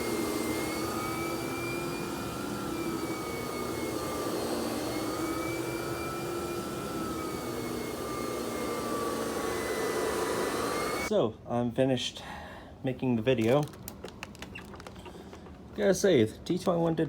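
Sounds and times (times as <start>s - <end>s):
vacuum cleaner running: 0.0s - 11.1s.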